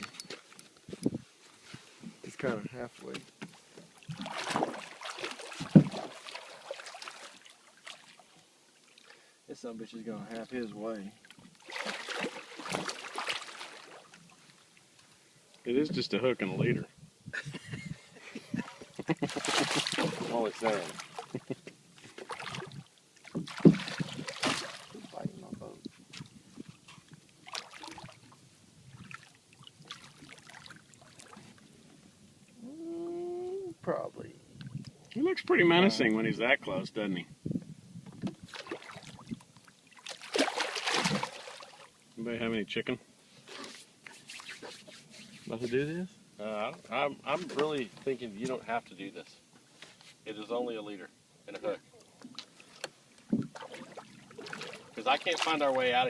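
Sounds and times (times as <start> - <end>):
water splashing: 3.9 - 9.2, 10.2 - 14.8, 18.5 - 31.8, 38.4 - 42.0, 52.0 - 56.0.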